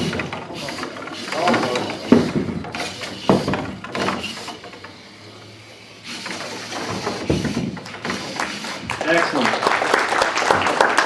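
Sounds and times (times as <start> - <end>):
objects knocking and thudding: 0.0 - 5.0, 6.1 - 9.3.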